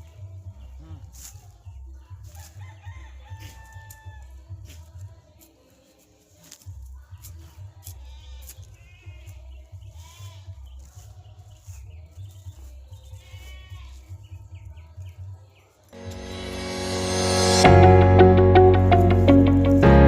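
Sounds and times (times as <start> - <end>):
goats bleating: 13.2 - 14.1
low rumble: 16.0 - 20.0
piano music: 16.0 - 20.0.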